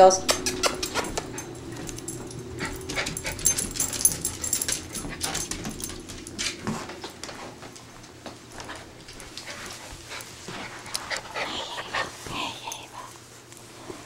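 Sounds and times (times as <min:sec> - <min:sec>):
dog whimpering and yipping: 0:00.3 - 0:01.5.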